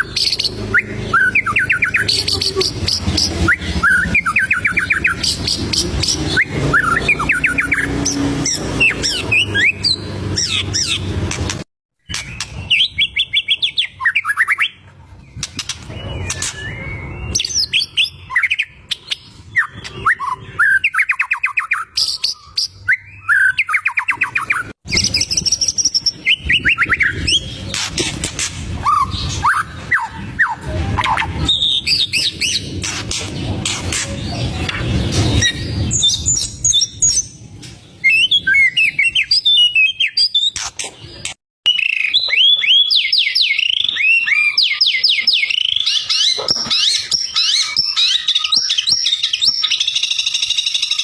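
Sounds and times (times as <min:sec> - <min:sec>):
songbird trills and whistles: 0:15.4 - 0:27.8, 0:38.0 - 0:51.0.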